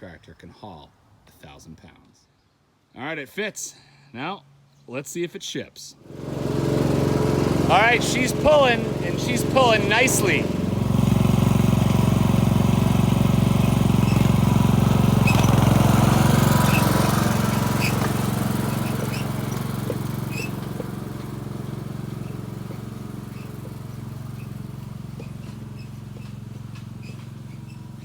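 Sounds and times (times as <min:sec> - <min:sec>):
lawn tractor engine running: 0:06.0 - 0:28.0.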